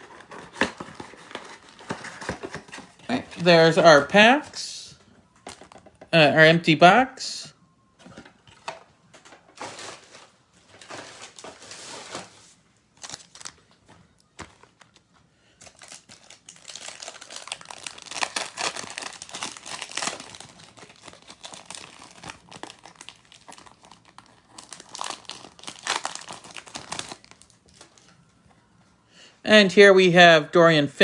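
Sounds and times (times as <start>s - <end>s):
foil wrapper crinkling and tearing: 13.0s - 13.6s, 15.6s - 28.0s.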